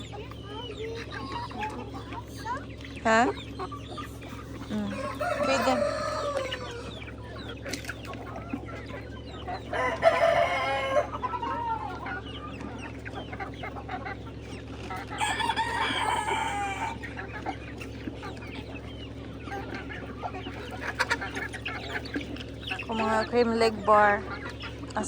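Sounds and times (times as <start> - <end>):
chickens clucking: 0.0 - 25.0
rooster crowing: 4.9 - 7.0, 9.7 - 11.2, 15.2 - 17.0.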